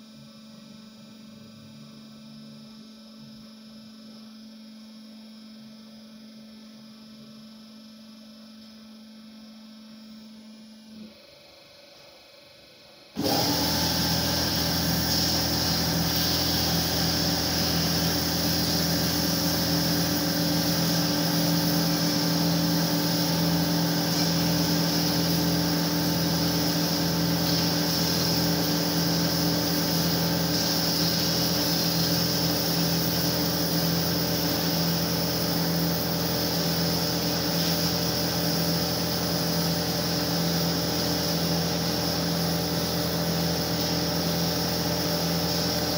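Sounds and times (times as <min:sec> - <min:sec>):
band saw running: 0:13.2 - 0:45.9.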